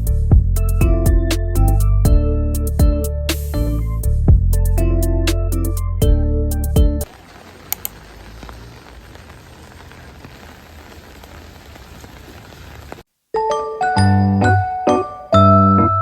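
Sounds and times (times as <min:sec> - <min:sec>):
steady rain falling: 0:07.0 - 0:13.2
faint drips: 0:07.1 - 0:13.0
background music: 0:13.4 - 0:16.0.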